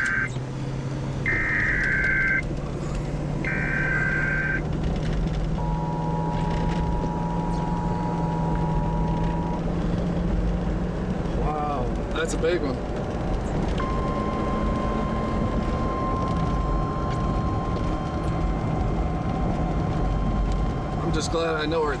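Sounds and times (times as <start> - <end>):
warbling data bursts: 0.0 - 0.3, 1.3 - 2.4, 3.4 - 4.6
two-tone attention signal: 0.0 - 0.4, 1.3 - 2.4, 3.4 - 4.6, 5.6 - 9.6, 13.8 - 18.6
vehicle engine humming: 0.0 - 22.0.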